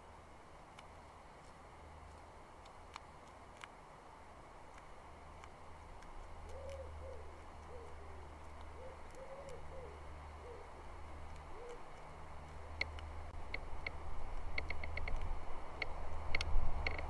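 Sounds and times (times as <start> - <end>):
steady low hum: 0.0 - 17.0
bird hooting calls: 6.4 - 11.9.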